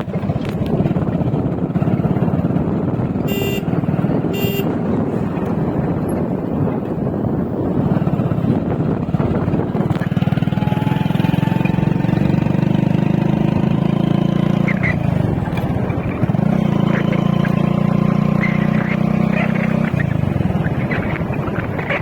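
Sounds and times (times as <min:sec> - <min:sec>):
motorcycle engine running: 0:00.0 - 0:22.0
road and traffic noise: 0:00.0 - 0:22.0.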